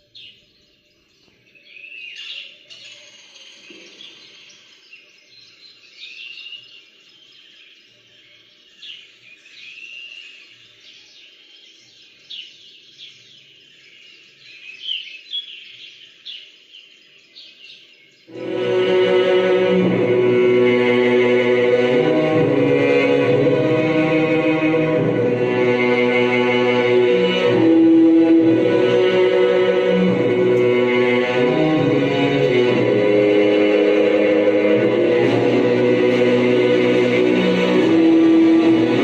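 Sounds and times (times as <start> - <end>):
birds chirping and whistling: 0.0 - 18.4.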